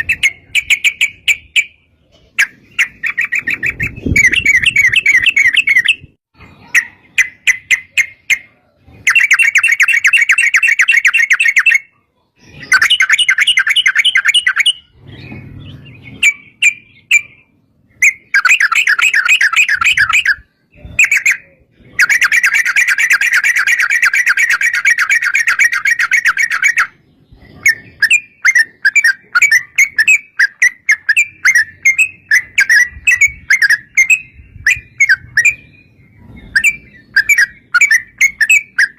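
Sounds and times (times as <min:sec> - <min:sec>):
bird chattering trills: 0:00.0 - 0:38.9.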